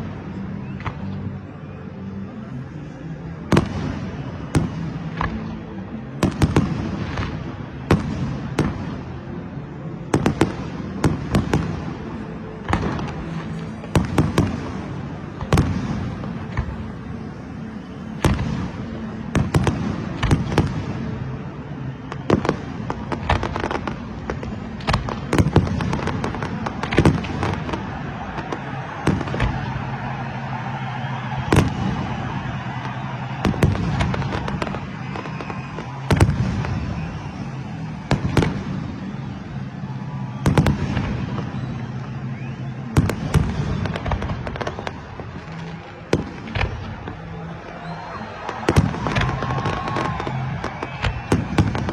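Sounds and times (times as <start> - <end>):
distant fireworks crackle: 0.0 - 51.9
fireworks bangs: 10.1 - 21.4, 22.0 - 51.9.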